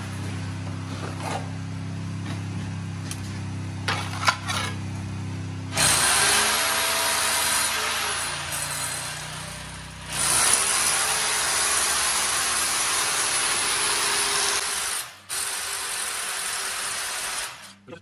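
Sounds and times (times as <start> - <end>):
electric drill boring into wall: 5.8 - 17.7.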